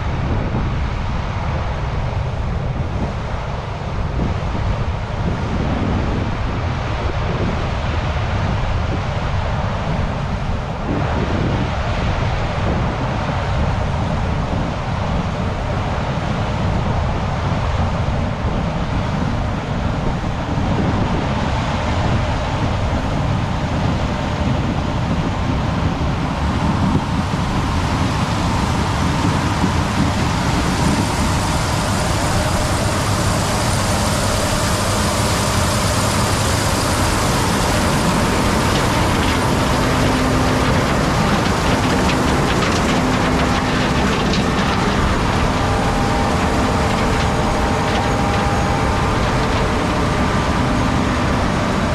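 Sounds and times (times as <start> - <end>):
heavy vehicle engines running: 0.0 - 51.9
steady hum: 22.1 - 51.9.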